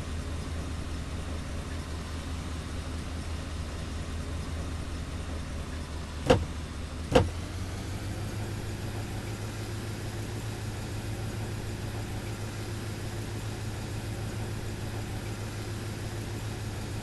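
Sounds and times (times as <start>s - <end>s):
car engine idling: 0.0s - 17.0s
sharp knocks: 6.2s - 6.5s, 7.1s - 7.3s.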